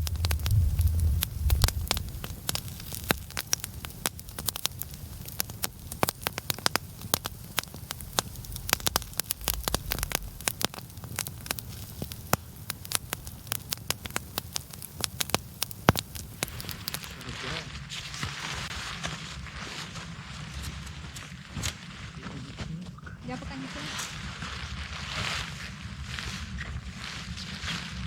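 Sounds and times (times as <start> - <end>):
low steady rumble: 0.0 - 17.8
campfire crackling and popping: 0.0 - 28.0.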